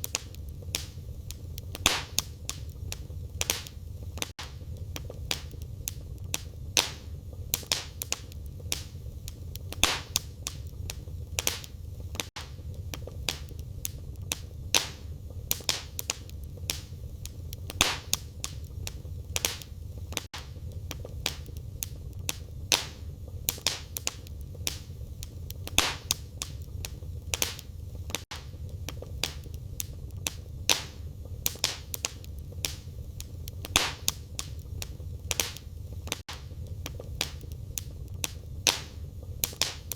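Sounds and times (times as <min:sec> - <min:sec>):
fire rumbling: 0:00.0 - 0:39.9
wood fire crackling and popping: 0:00.0 - 0:39.9.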